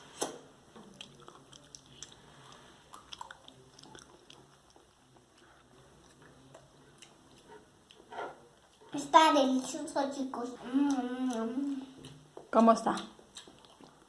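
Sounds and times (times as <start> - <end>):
person chewing food: 0.2 - 8.9, 13.2 - 14.0.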